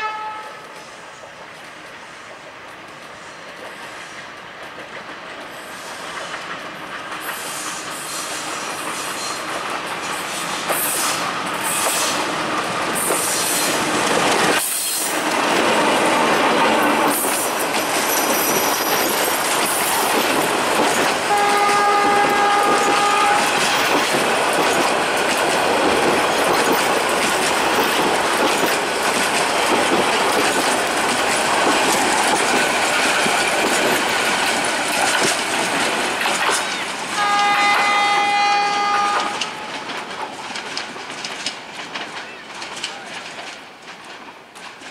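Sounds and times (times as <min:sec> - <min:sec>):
train horn: 0:00.0 - 0:00.9, 0:21.2 - 0:23.8, 0:37.1 - 0:39.9
train wheels clattering over rail joints: 0:00.7 - 0:44.9.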